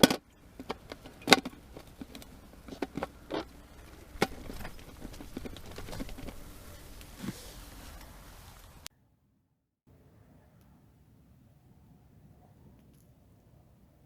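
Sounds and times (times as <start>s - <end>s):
fishing gear clicks and knocks: 0.0s - 8.8s
steady rushing noise: 0.2s - 8.9s.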